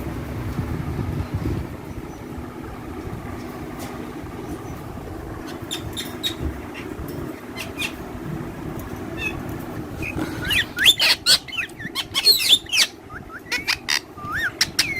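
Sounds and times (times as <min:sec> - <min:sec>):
faint hum: 0:00.0 - 0:14.9
parrots chirping: 0:04.5 - 0:14.9.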